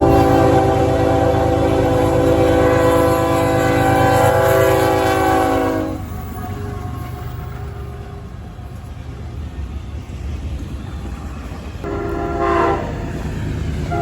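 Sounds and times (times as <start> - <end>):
locomotive air horn chord: 0.0 - 6.1, 11.8 - 13.2
diesel train rumbling: 0.0 - 14.0.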